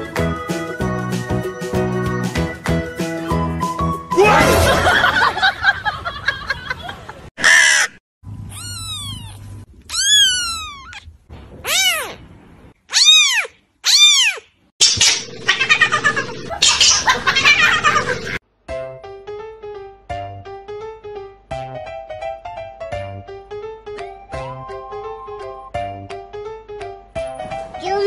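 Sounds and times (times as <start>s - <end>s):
kitten meowing: 8.5s - 12.2s, 12.9s - 14.5s.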